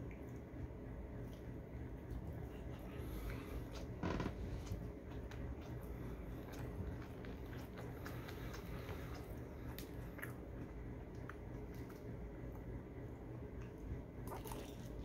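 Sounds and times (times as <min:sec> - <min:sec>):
steady low hum: 0:00.0 - 0:15.0
person chewing: 0:04.6 - 0:12.7.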